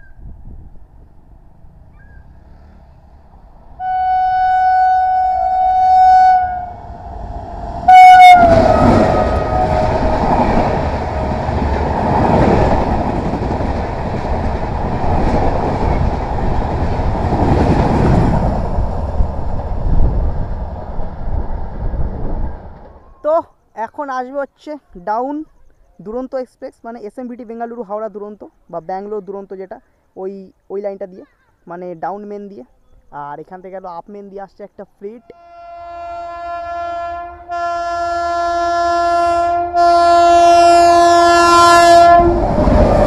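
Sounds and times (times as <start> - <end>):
train coaches rumbling past: 0.3 - 23.2, 35.7 - 43.0
locomotive horn blast: 3.8 - 11.4, 35.3 - 43.0.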